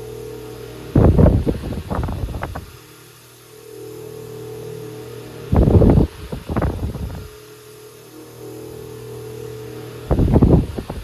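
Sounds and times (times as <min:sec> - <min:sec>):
electric fan humming: 0:00.0 - 0:11.0
wind buffeting microphone: 0:01.0 - 0:02.8, 0:05.5 - 0:07.4, 0:10.1 - 0:11.0.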